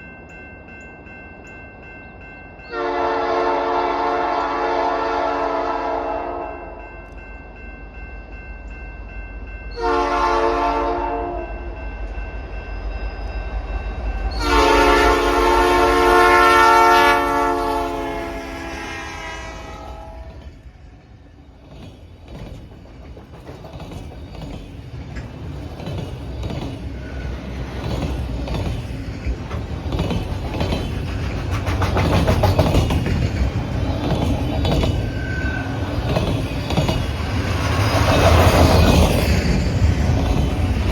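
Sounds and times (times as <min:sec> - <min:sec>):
train engine rumble: 0:00.0 - 0:40.9
locomotive horn blasts: 0:02.7 - 0:06.7, 0:09.8 - 0:11.6, 0:14.3 - 0:20.3
wheel clatter on rails: 0:21.6 - 0:40.9.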